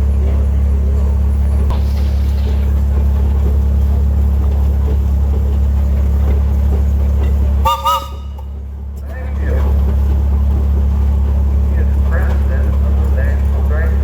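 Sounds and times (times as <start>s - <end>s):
loud low hum: 0.0s - 14.0s
whistle toots: 7.6s - 8.4s.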